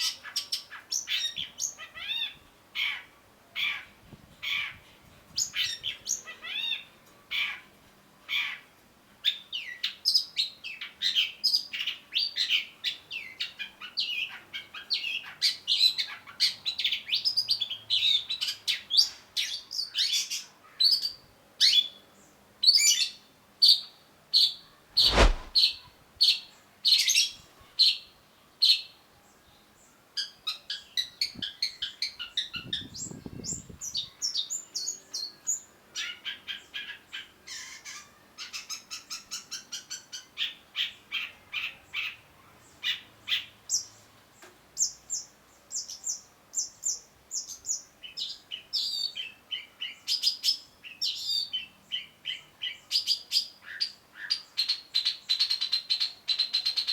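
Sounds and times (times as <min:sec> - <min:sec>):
loud thump: 0:25.0 - 0:25.6.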